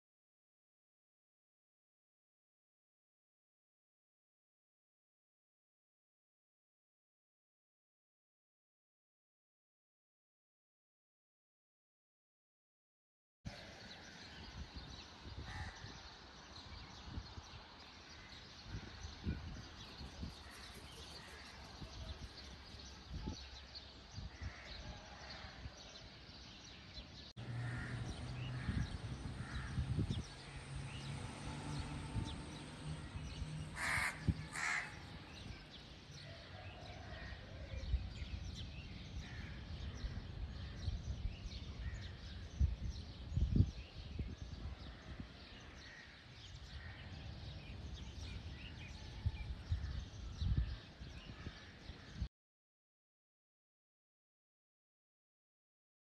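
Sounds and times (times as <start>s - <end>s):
birds calling: 18.1s - 23.0s, 27.4s - 36.1s
crow cawing: 27.5s - 29.8s, 33.7s - 35.2s.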